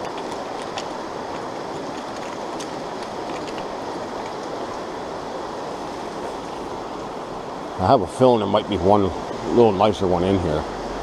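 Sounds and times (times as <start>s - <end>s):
small ticks: 0.0s - 4.8s
stream water rushing: 0.0s - 11.0s.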